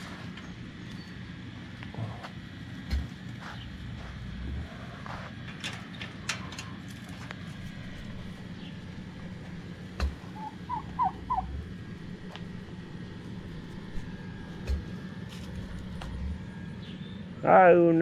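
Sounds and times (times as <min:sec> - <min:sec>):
steady low hum: 0:00.0 - 0:18.0
turkey calls: 0:08.3 - 0:14.9.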